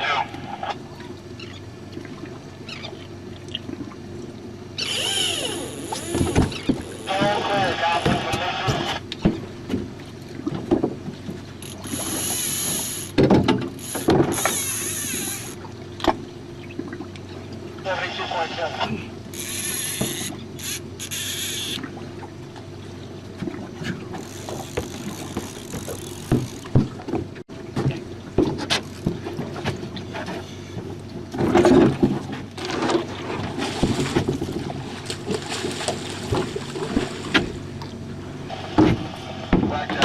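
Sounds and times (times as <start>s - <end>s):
outboard motor running: 0.0s - 40.0s
knocks and clicks of gear: 12.7s - 15.3s, 16.0s - 16.2s, 23.4s - 35.4s.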